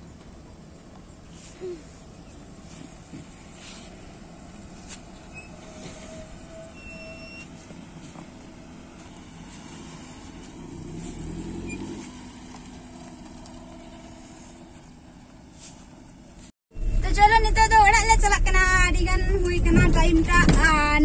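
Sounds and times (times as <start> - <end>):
car engine driving past: 7.2 - 15.0.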